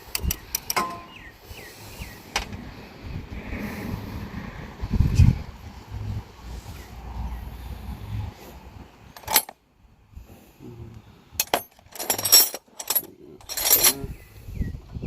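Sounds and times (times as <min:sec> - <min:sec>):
hand tools clanking on metal: 0:00.0 - 0:01.3, 0:09.2 - 0:09.5, 0:11.4 - 0:14.1
wind rumble on microphone: 0:01.2 - 0:09.2, 0:13.8 - 0:15.0.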